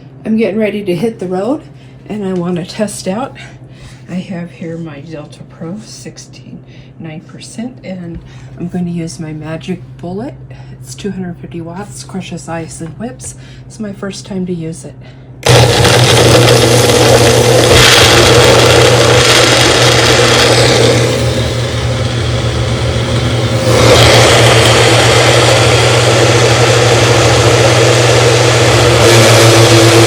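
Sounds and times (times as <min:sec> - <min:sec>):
blender motor whirring: 0:15.4 - 0:30.0.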